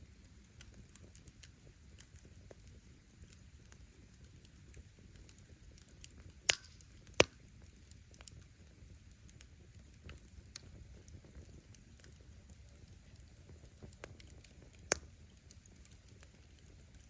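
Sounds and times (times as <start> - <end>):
wood fire crackling: 0.0 - 17.0
loud sharp pops: 6.5 - 7.4.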